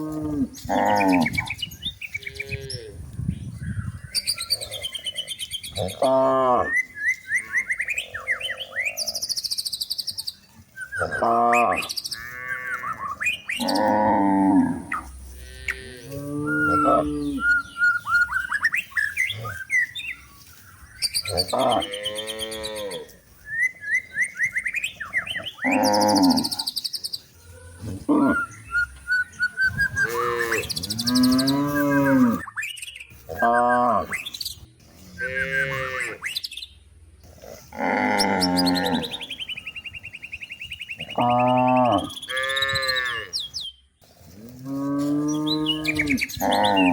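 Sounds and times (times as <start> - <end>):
cows mooing: 0.0 - 1.6, 5.8 - 6.8, 11.0 - 13.0, 13.6 - 17.7, 21.2 - 23.2, 25.4 - 26.7, 30.0 - 32.4, 35.0 - 36.2, 37.3 - 39.4, 41.0 - 43.3, 44.4 - 46.9
birds chirping: 0.0 - 46.9.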